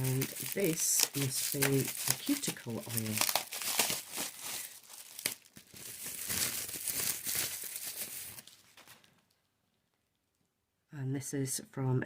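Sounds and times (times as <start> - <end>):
wrapping crinkling and tearing: 0.0 - 9.5.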